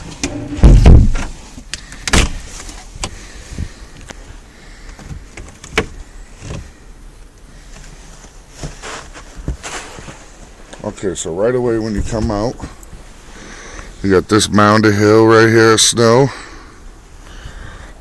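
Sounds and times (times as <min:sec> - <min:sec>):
door thump: 0:00.6 - 0:01.3.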